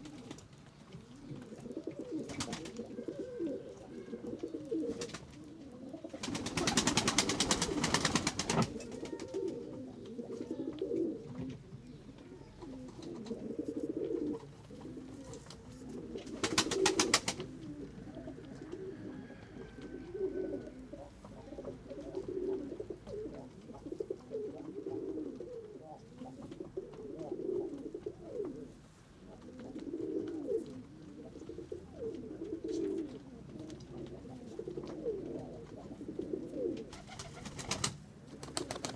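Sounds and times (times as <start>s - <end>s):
pigeons cooing: 0.0s - 38.9s
wings flapping rapidly: 6.2s - 9.4s, 16.3s - 17.5s, 36.9s - 38.9s.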